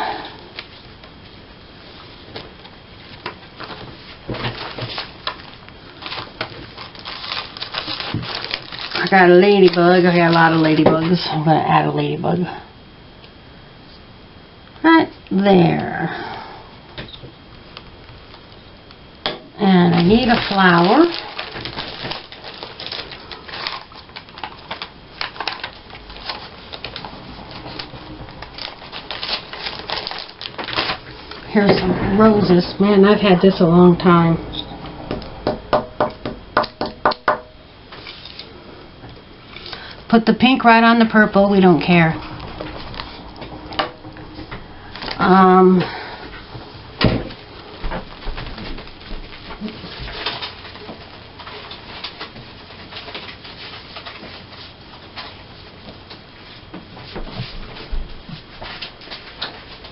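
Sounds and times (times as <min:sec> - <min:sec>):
paper rustling and crinkling: 0:01.8 - 0:11.2, 0:19.7 - 0:31.5, 0:47.3 - 0:59.9.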